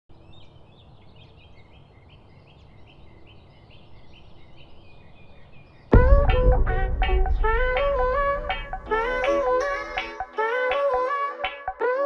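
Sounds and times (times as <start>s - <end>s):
loud music: 5.9s - 11.9s.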